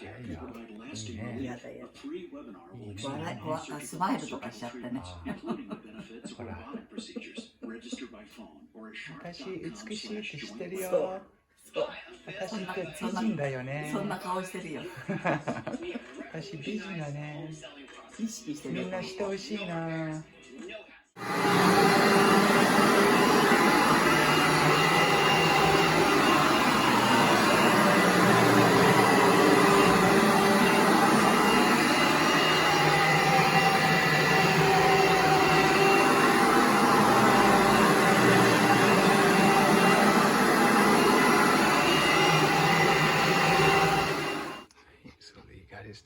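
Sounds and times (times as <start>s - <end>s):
appliance motor whirring: 21.2s - 44.7s.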